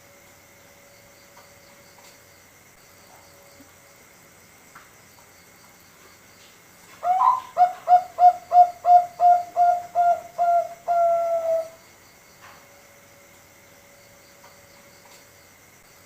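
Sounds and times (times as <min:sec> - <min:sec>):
dove cooing: 0:07.0 - 0:11.8.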